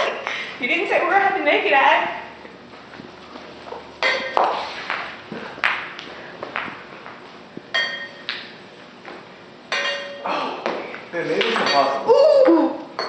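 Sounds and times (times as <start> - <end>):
ping pong balls bouncing: 11.4 - 13.0.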